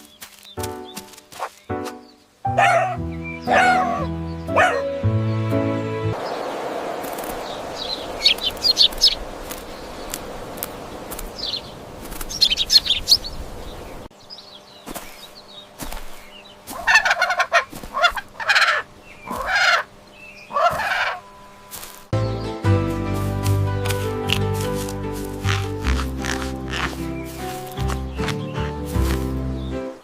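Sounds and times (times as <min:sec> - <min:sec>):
fowl calling loudly: 0:02.5 - 0:04.9, 0:16.7 - 0:21.9, 0:24.7 - 0:28.4
fowl chirping: 0:02.6 - 0:04.9, 0:16.2 - 0:21.9, 0:25.4 - 0:29.2
steady background hiss: 0:06.2 - 0:22.1.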